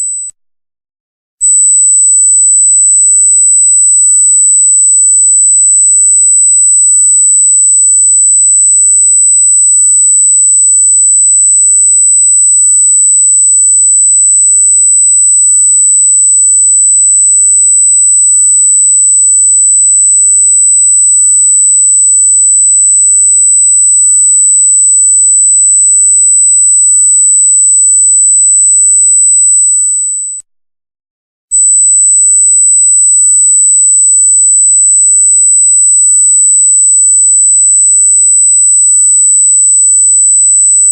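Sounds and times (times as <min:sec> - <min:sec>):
high-pitched electronic tone: 0:00.0 - 0:00.3.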